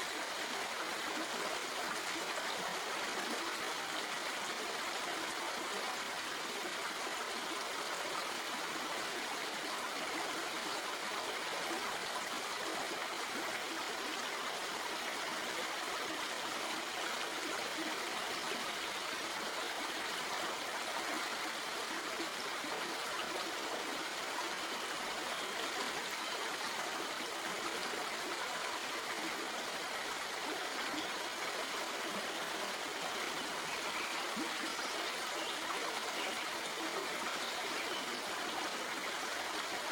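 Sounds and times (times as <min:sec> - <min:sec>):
stream burbling over rocks: 0:00.0 - 0:39.9.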